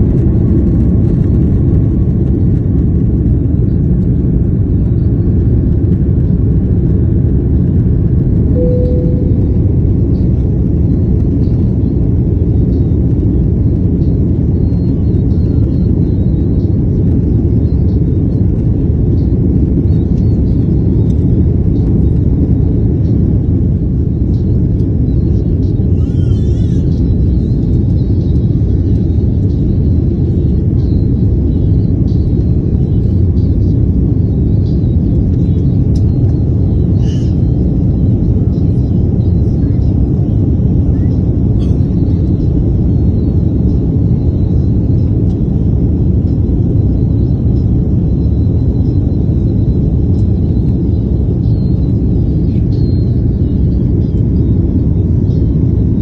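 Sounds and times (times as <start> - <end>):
jet engine cabin rumble: 0.0 - 56.0
faint tone: 8.5 - 10.6.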